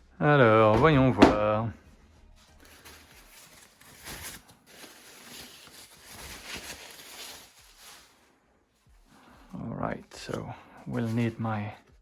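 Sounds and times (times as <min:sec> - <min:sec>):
packaging rustling: 0:02.5 - 0:08.3.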